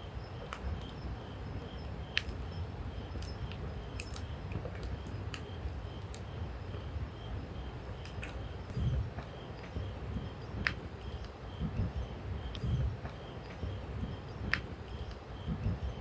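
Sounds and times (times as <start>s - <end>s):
campfire crackling and popping: 3.2s - 6.3s, 8.0s - 11.4s, 14.5s - 15.2s.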